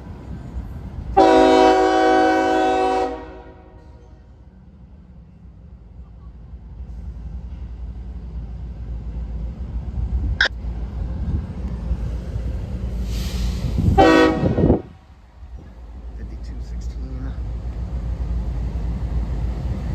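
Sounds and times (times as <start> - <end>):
train rumble: 0.0 - 19.9
train horn blasts: 1.2 - 4.2, 14.0 - 14.9.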